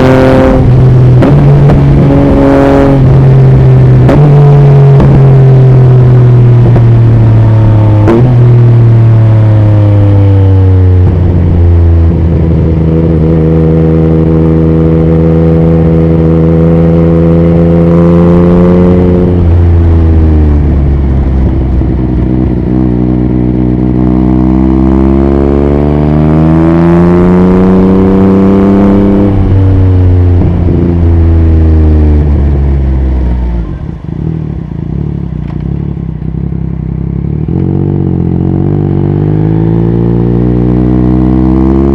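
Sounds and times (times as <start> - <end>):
wind noise: 0.0 - 17.2, 18.6 - 24.2, 26.5 - 34.4
motorcycle engine at highway speed: 0.0 - 41.9.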